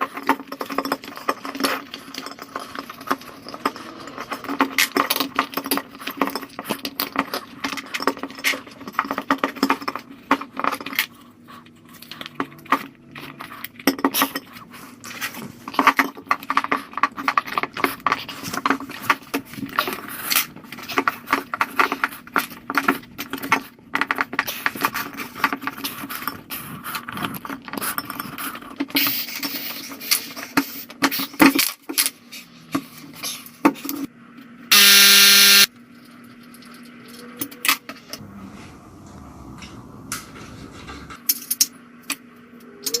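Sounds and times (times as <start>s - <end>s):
loud buzzy electronic beep: 34.7s - 35.7s.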